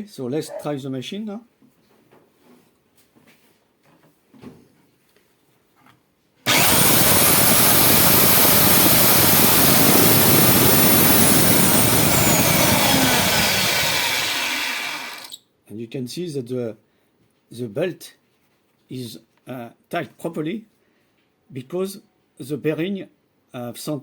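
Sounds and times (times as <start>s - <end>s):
belt sander running with whine: 6.5s - 15.4s.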